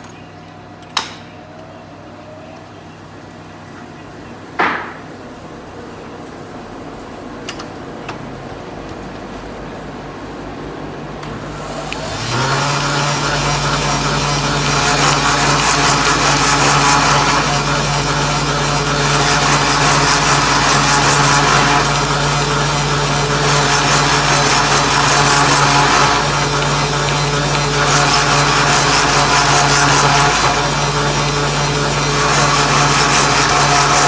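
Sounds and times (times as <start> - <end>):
cutter working wood: 11.2 - 34.0
motor humming: 11.2 - 34.0.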